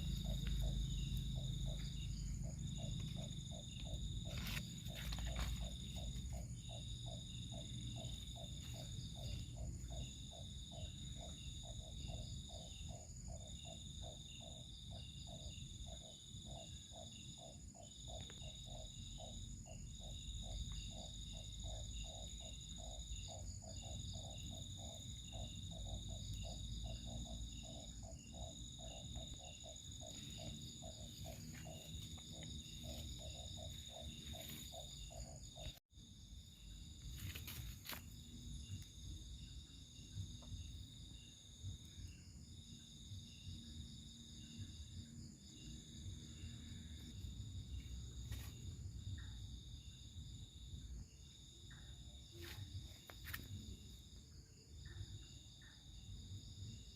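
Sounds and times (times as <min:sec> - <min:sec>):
low repeated frog call: 0:00.0 - 0:35.8
cricket-like trill: 0:00.0 - 0:56.9.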